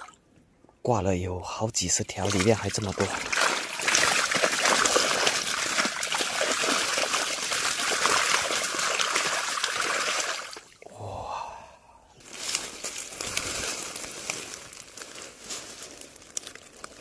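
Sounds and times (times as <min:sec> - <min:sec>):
water splashing from net: 0:02.1 - 0:11.0.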